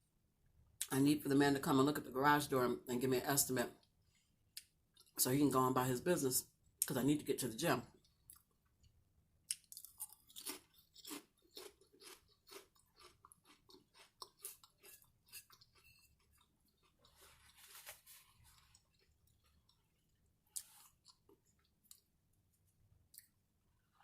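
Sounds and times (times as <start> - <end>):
person chewing crunchy food: 9.5 - 22.2.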